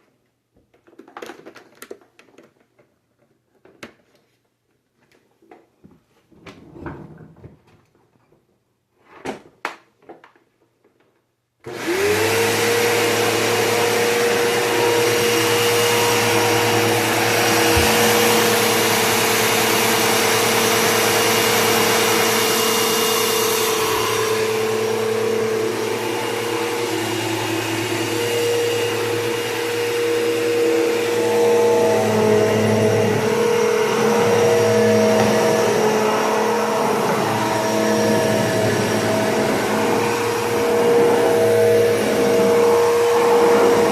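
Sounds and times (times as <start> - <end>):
vacuum cleaner motor running: 11.6 - 43.9.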